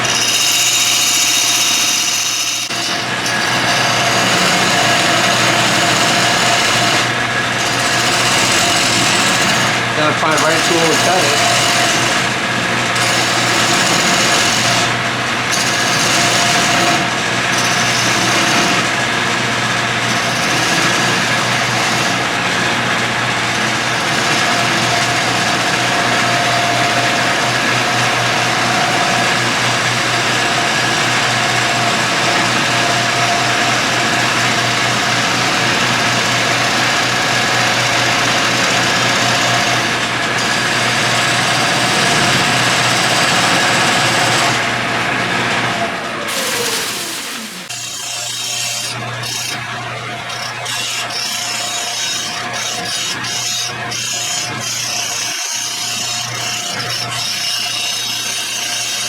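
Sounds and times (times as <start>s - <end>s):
turning tool cutting wood: 0.0s - 59.0s
wood lathe running: 0.0s - 59.0s.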